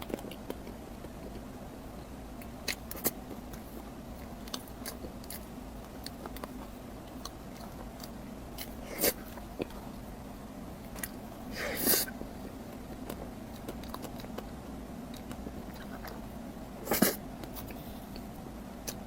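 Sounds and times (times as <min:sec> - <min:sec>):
wet mouth clicks: 0:02.6 - 0:03.2.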